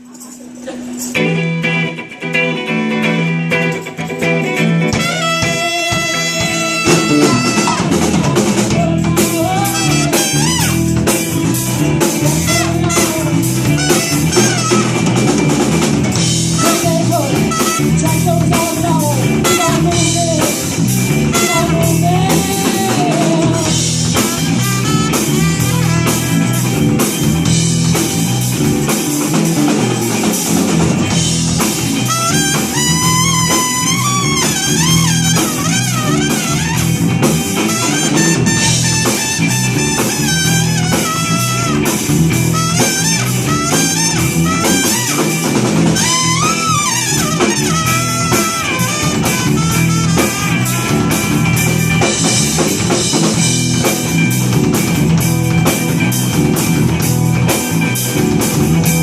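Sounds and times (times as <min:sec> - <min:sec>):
drum kit beat with rimshots: 0:00.0 - 0:59.0
rock band playing: 0:00.0 - 0:59.0
wavering lead melody: 0:01.0 - 0:59.0.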